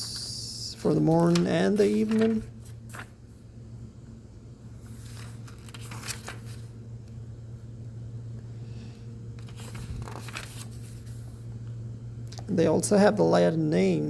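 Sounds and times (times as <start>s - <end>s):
steady low hum: 0.0s - 14.0s
thin pages rustling: 1.0s - 3.2s, 4.8s - 6.8s, 9.4s - 11.4s.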